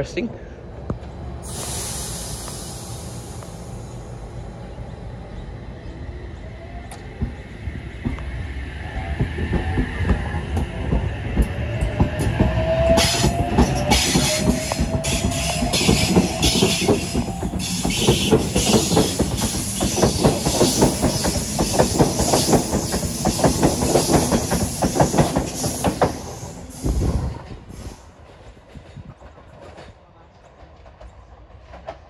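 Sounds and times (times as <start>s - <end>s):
train wheels clattering: 9.2s - 32.0s.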